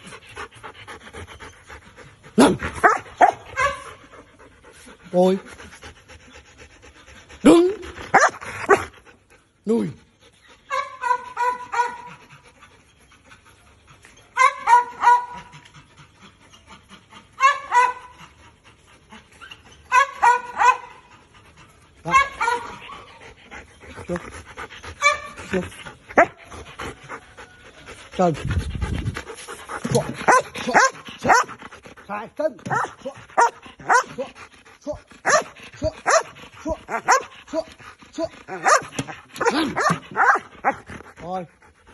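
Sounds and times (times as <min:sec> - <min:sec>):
dog barking and yipping: 0:02.4 - 0:04.1, 0:07.5 - 0:08.9, 0:10.6 - 0:12.3, 0:14.3 - 0:15.6, 0:17.4 - 0:18.2, 0:19.4 - 0:21.1, 0:22.0 - 0:23.2, 0:25.0 - 0:25.6, 0:26.2 - 0:26.4, 0:29.7 - 0:31.6, 0:32.6 - 0:34.3, 0:35.2 - 0:40.9
dog yipping: 0:10.7 - 0:12.1, 0:14.4 - 0:15.4, 0:19.4 - 0:20.9, 0:22.0 - 0:23.2, 0:35.2 - 0:35.4, 0:38.5 - 0:40.4.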